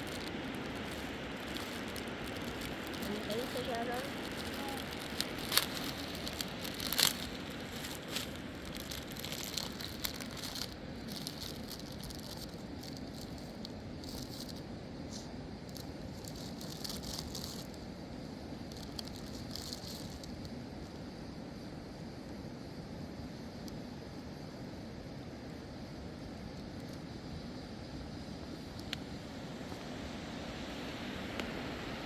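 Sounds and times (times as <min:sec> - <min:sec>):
rustling: 0:00.0 - 0:17.8, 0:18.6 - 0:20.4
steady low rumble: 0:00.0 - 0:24.8.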